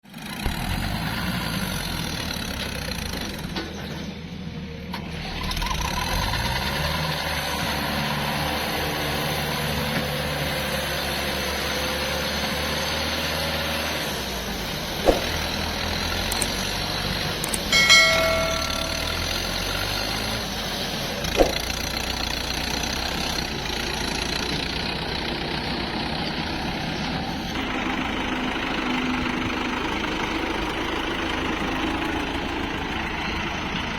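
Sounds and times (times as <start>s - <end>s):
sharp knocks: 15.0s - 15.4s, 17.8s - 19.4s
ringing squeal: 17.7s - 19.6s
diesel machinery running: 18.6s - 33.9s.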